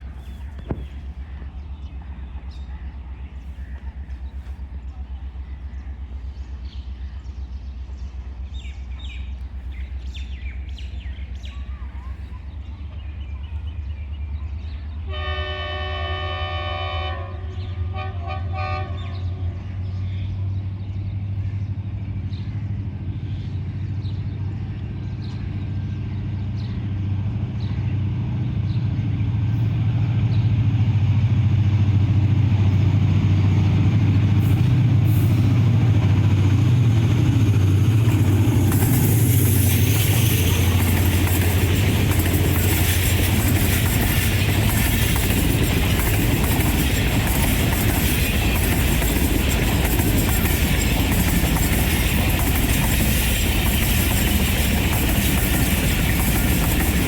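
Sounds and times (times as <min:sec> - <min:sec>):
locomotive engine rumble: 0:00.0 - 0:57.0
locomotive horn: 0:15.1 - 0:19.6
train wheels rushing: 0:22.3 - 0:57.0.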